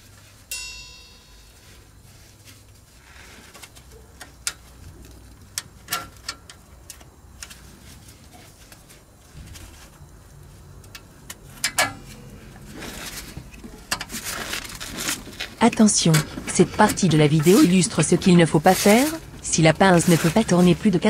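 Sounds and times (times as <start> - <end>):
metal scraping: 11.4 - 21.0.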